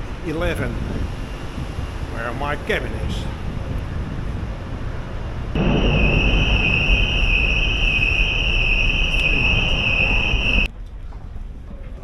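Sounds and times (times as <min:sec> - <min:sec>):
machinery rumble and hiss: 0:00.0 - 0:10.7
steady high-pitched tone: 0:05.6 - 0:10.7.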